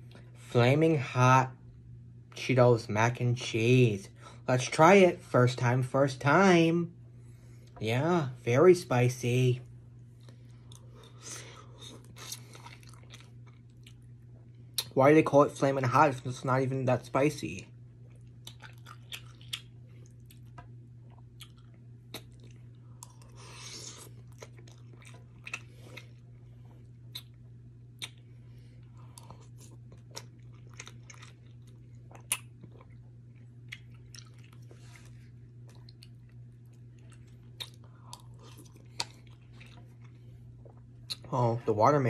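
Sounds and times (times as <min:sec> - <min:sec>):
steady low hum: 0:00.0 - 0:42.0
person chewing noodles: 0:10.0 - 0:14.9, 0:18.0 - 0:41.3
mouth clicks and smacks: 0:27.1 - 0:28.2.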